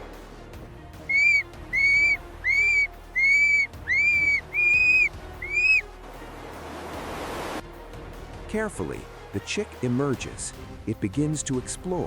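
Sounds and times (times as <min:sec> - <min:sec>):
bird whistled call: 0:01.0 - 0:05.8.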